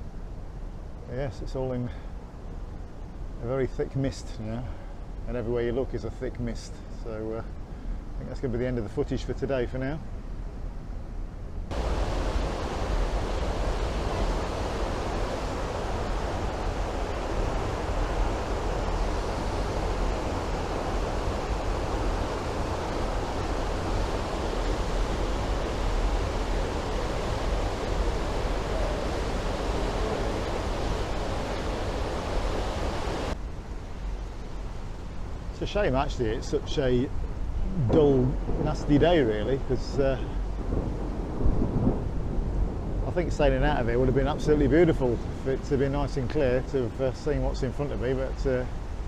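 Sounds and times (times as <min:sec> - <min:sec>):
wind and sea rushing: 0:00.0 - 0:49.0
wind rumble on microphone: 0:10.0 - 0:49.0.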